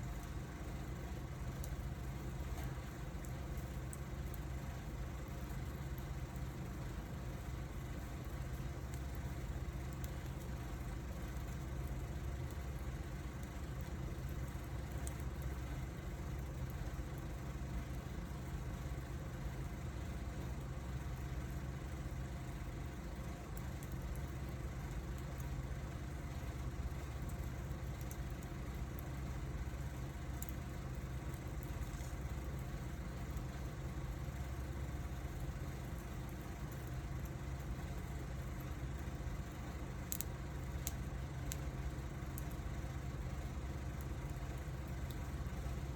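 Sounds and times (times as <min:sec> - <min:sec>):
fire crackles: 0:00.0 - 0:45.9
wood fire rumbling: 0:00.0 - 0:45.9.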